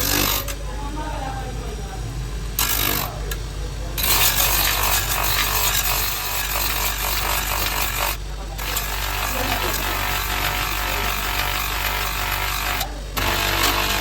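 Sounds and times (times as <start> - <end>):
power tool blade cutting wood: 0.0 - 0.6, 4.0 - 14.0.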